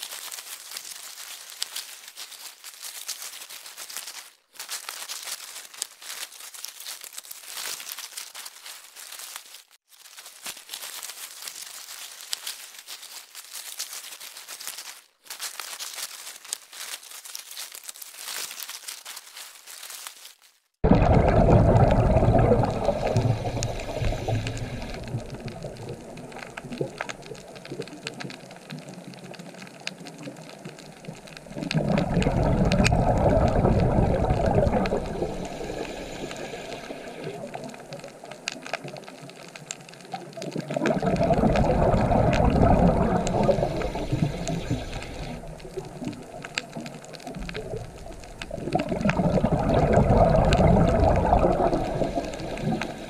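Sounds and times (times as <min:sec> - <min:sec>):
underwater exhaled bubbles rushing: 0:20.8 - 0:39.2, 0:40.0 - 0:53.0
faint crackling ticks: 0:22.2 - 0:53.0.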